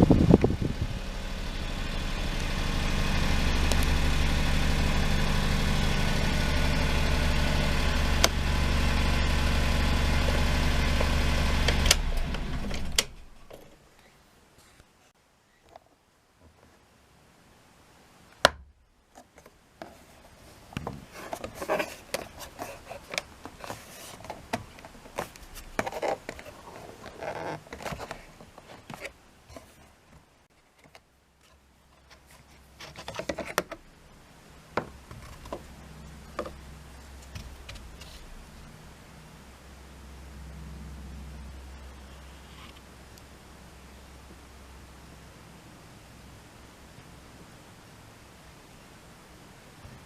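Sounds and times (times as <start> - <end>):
low steady hum: 17.0 - 50.0
plastic parts clicking and scraping: 20.8 - 29.8, 30.6 - 33.8.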